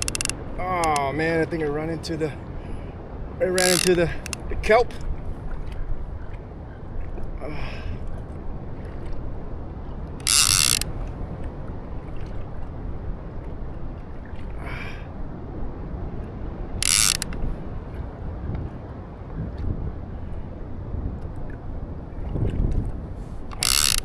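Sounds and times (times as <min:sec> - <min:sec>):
fishing reel drag buzzing: 0:00.0 - 0:01.0, 0:03.4 - 0:04.5, 0:10.2 - 0:10.9, 0:16.8 - 0:17.3, 0:23.5 - 0:24.0.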